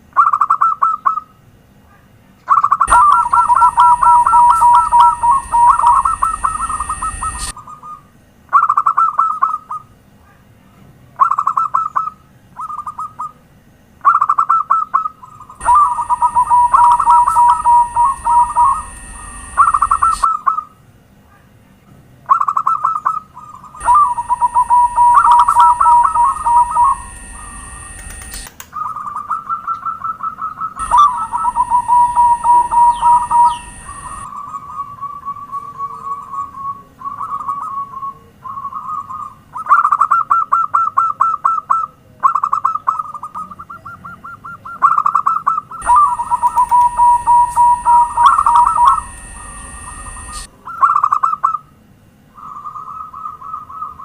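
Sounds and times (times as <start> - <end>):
dove cooing: 2.5 - 8.1, 14.1 - 20.6, 22.3 - 41.1, 41.7 - 51.6
steady high-pitched tone: 2.8 - 7.6, 15.5 - 20.4, 23.8 - 28.5, 30.8 - 35.0, 45.8 - 50.7.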